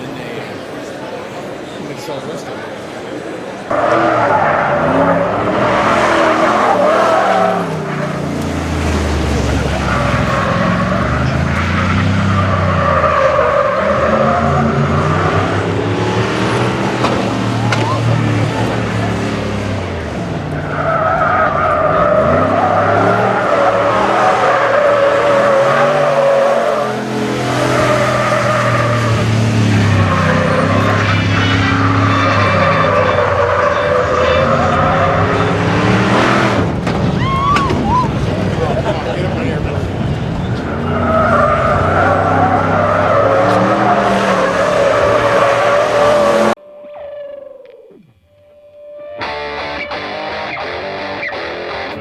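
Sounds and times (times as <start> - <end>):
tires squealing: 3.6 - 47.5
car engine revving: 3.7 - 37.2, 37.8 - 46.6
tyres squealing: 20.4 - 38.6.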